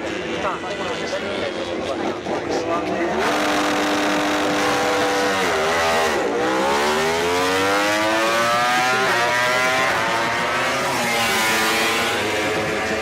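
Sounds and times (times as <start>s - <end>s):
race bike engine accelerating: 3.0s - 13.0s.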